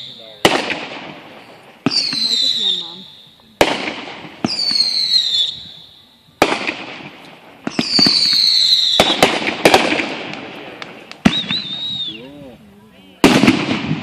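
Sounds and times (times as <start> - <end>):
fireworks banging: 0.0 - 14.0
high falling firework whistle: 4.5 - 6.1, 7.7 - 9.3, 11.2 - 12.3.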